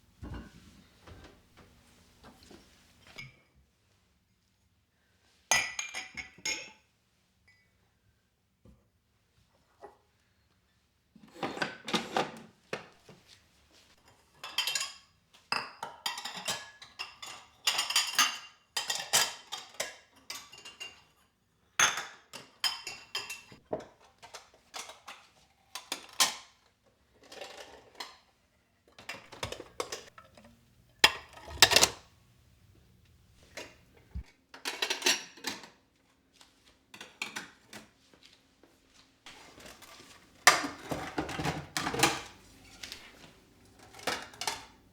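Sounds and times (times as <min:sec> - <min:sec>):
dishes and cutlery clattering: 0:00.2 - 0:01.3, 0:14.0 - 0:21.2, 0:21.8 - 0:25.2, 0:29.0 - 0:35.8, 0:39.3 - 0:44.9.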